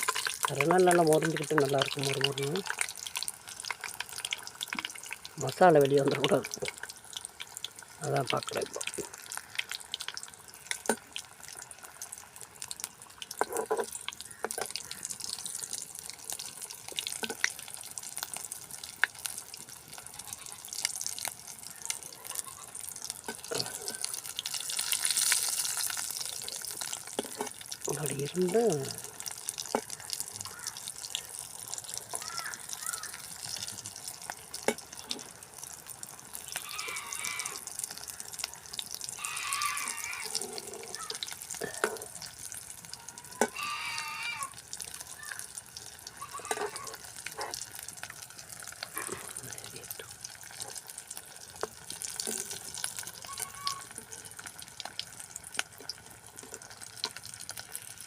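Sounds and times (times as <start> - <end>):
hot oil sizzling: 0.0 - 58.0
sharp pops and clicks: 16.9 - 17.6, 29.6 - 31.2, 34.3 - 35.2.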